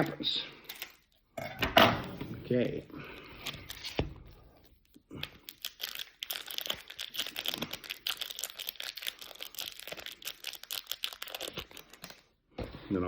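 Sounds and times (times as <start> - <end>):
foil wrappers crinkling: 4.6 - 12.3.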